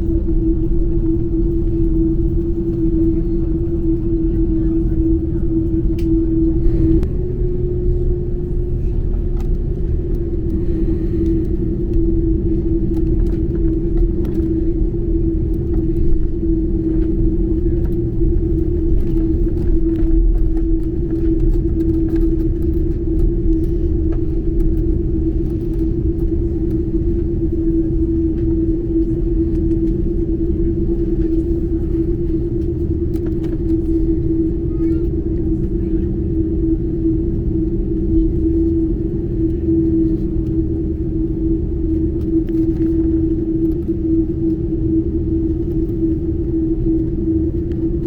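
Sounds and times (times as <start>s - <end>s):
airplane cabin rumble: 0.0s - 48.0s
engine hum: 0.0s - 48.0s.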